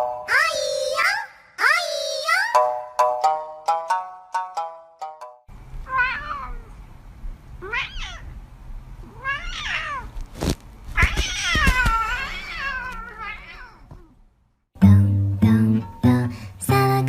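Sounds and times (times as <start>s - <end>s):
plucked music-box tune: 2.5s - 5.5s
cat meowing: 5.8s - 6.8s, 7.6s - 8.4s, 9.0s - 10.2s, 10.9s - 14.2s.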